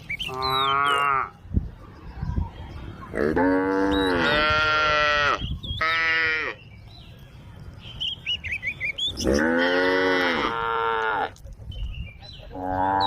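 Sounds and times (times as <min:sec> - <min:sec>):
cow mooing: 0:03.2 - 0:06.6, 0:09.2 - 0:11.3.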